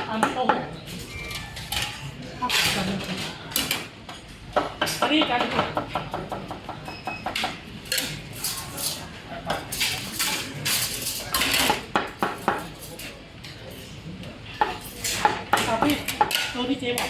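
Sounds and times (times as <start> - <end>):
dishes and cutlery clattering: 0.0 - 14.0, 14.6 - 17.0.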